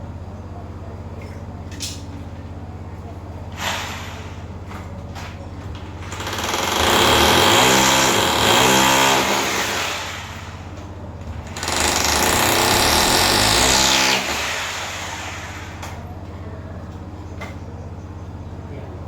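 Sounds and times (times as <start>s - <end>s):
power tool rattling and hammering: 3.5s - 16.3s.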